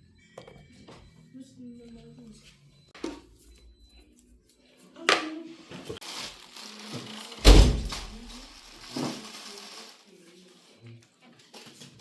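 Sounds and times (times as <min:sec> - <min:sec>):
heavy deep thunk: 0:07.4 - 0:08.3
knocks and thuds: 0:07.4 - 0:08.4.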